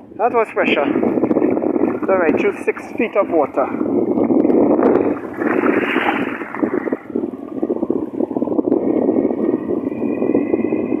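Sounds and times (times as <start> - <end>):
wind buffeting microphone: 0.0 - 11.0
floodwater rushing: 0.9 - 8.4.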